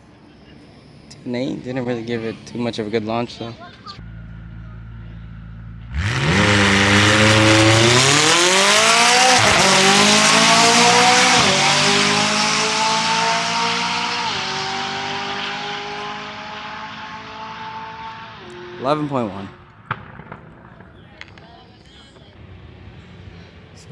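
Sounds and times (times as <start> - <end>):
car engine revving with gear changes: 4.0 - 19.5.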